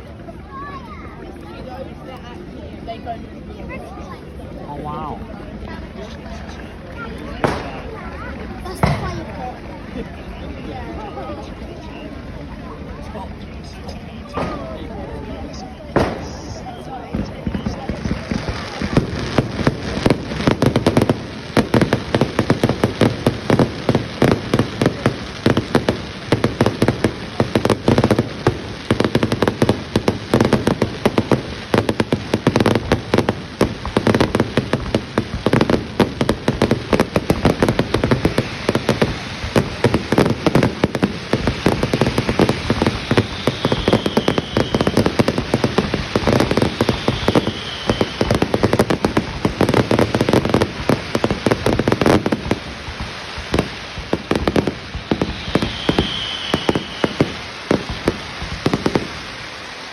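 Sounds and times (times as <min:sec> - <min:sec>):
fireworks crackling and popping: 0:00.0 - 0:59.9
faint firework whistle: 0:15.4 - 0:19.2, 0:38.2 - 0:49.9, 0:53.0 - 0:59.9.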